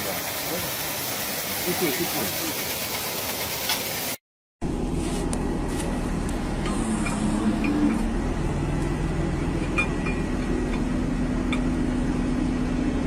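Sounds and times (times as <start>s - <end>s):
heavy vehicle low rumble: 4.6s - 13.0s.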